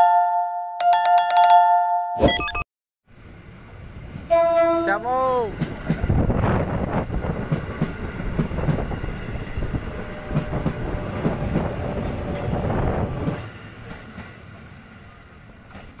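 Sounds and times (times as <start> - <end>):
train rumble: 3.1 - 16.0
train wheels clacking over rail joints: 5.6 - 6.2, 10.2 - 12.6.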